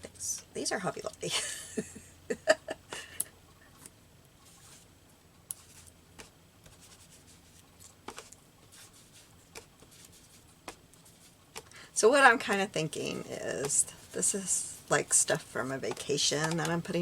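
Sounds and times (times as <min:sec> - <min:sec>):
faint background hiss: 0:00.0 - 0:17.0
paper rubbing and tapping: 0:05.5 - 0:11.7, 0:12.4 - 0:17.0.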